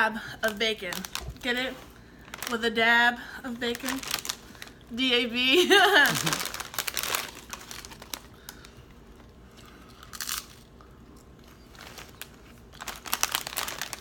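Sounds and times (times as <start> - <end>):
potato chips crunching: 6.0 - 14.0.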